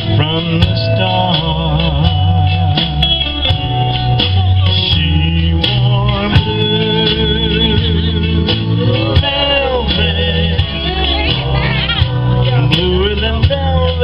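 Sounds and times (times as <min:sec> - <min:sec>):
bass line: 0:00.0 - 0:14.0
guitar: 0:00.0 - 0:14.0
person singing: 0:00.0 - 0:14.0.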